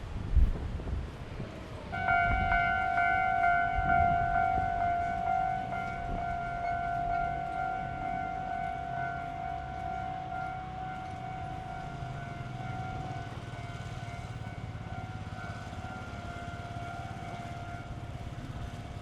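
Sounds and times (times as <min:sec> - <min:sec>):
wind gusts on microphone: 0:00.0 - 0:06.6
level crossing alarm tone: 0:01.9 - 0:19.0.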